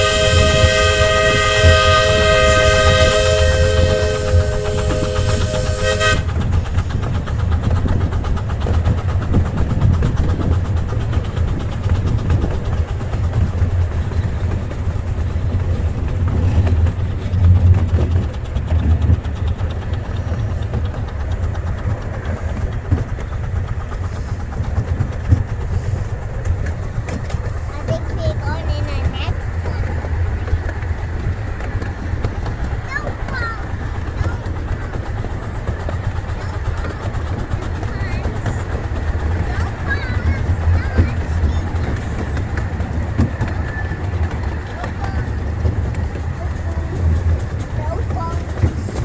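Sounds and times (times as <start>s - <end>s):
steam locomotive whistle: 0.0s - 6.4s
fast rail clatter: 0.0s - 49.0s
train low rumble: 0.0s - 49.0s.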